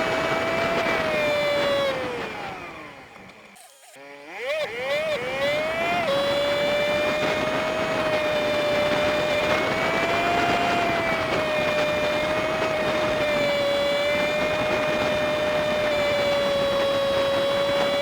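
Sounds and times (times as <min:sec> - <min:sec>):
high steady engine whine: 0:00.0 - 0:18.0.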